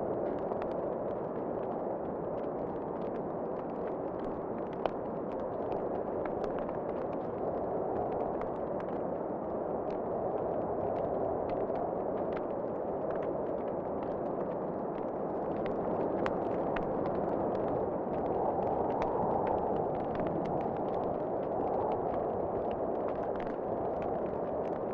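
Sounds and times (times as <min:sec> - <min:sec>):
fire popping: 0:10.6 - 0:24.9.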